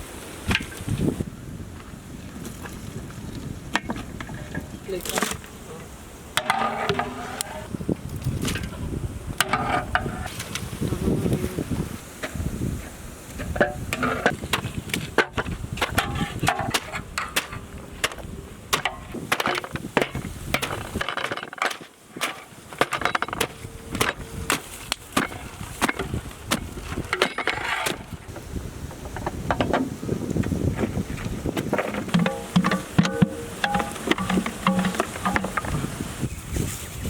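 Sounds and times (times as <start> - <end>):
irregular knocking and clattering: 31.6 - 35.9.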